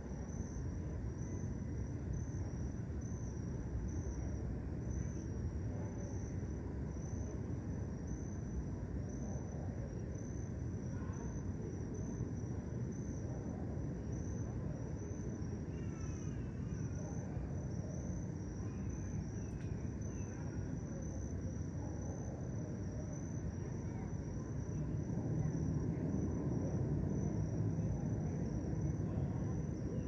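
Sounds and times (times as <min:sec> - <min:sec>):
crickets trilling: 0:00.0 - 0:30.0
low continuous rumble: 0:00.0 - 0:30.0
faint bird chirps: 0:15.7 - 0:17.0.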